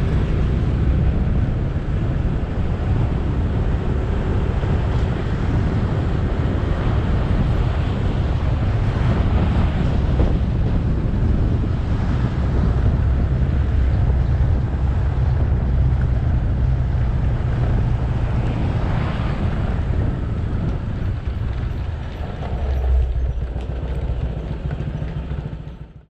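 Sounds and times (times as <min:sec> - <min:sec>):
motorcycle engine running: 0:00.0 - 0:26.0
road noise: 0:00.0 - 0:26.0
wind rumble on microphone: 0:00.0 - 0:26.0.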